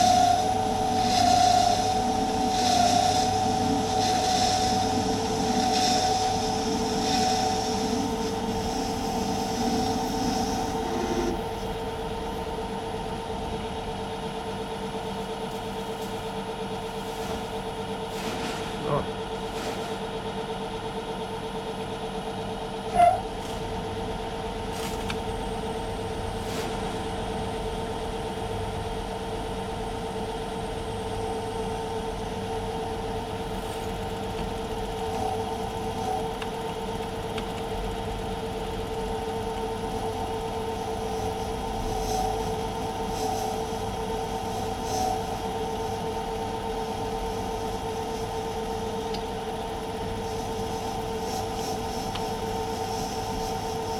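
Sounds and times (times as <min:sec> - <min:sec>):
metal lathe humming: 0:00.0 - 0:17.6, 0:31.3 - 0:50.3.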